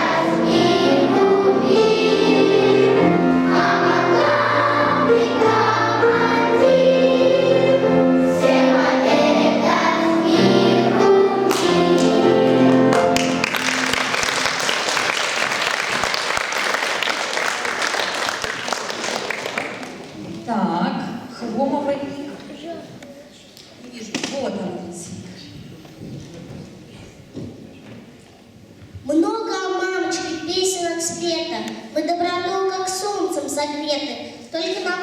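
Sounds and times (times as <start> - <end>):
musical accompaniment: 0.0 - 15.5
children's choir singing: 0.0 - 19.5
audience applauding: 11.5 - 20.2.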